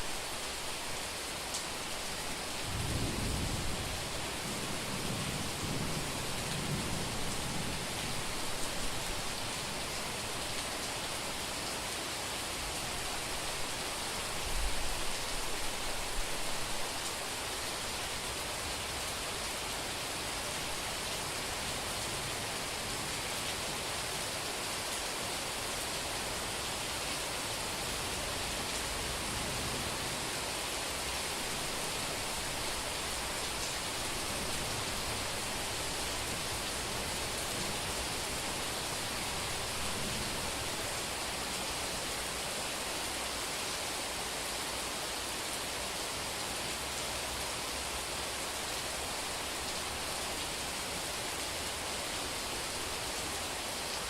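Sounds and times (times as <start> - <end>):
heavy rain on a street: 0.0 - 54.0
low rumble of thunder: 2.6 - 9.0.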